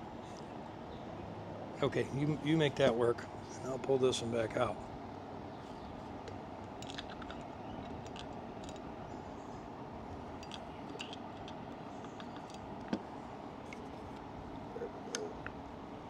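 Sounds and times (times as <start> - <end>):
steady background hiss: 0.0 - 16.0
metal parts clicking and tapping: 6.8 - 8.9, 10.4 - 13.0.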